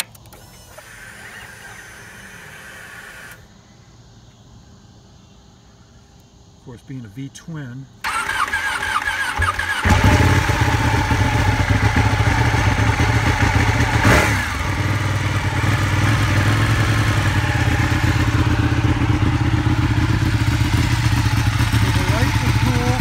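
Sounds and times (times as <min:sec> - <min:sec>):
motorcycle engine starting: 0:00.0 - 0:03.5, 0:08.0 - 0:23.0
motorcycle engine idling: 0:08.1 - 0:23.0.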